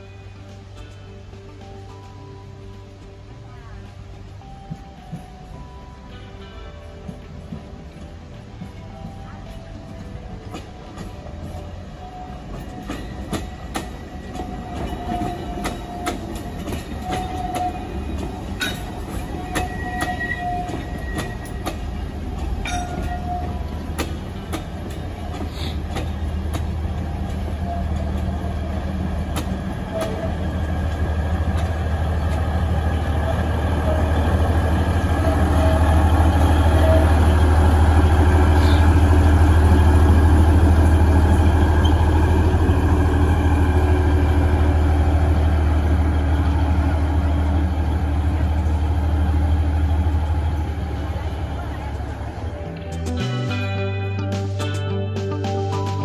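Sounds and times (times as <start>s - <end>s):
train running on rails: 0.0s - 56.0s
wheels clicking over rail joints: 6.5s - 43.8s.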